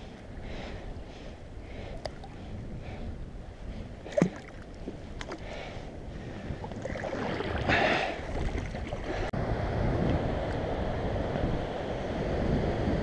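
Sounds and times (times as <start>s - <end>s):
water sloshing and surf: 0.0s - 13.0s
wind: 0.0s - 13.0s
rush of water: 6.6s - 9.4s.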